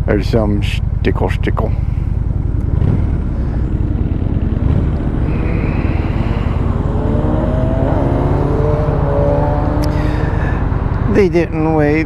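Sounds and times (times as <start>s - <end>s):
motorcycle engine running: 0.0s - 12.0s
wind rushing over microphone: 2.6s - 11.6s.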